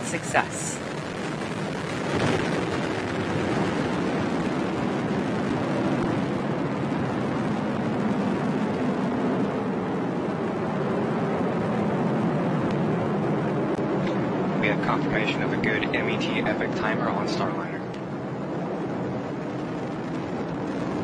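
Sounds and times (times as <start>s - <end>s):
rocket engine rumble: 0.0s - 21.0s.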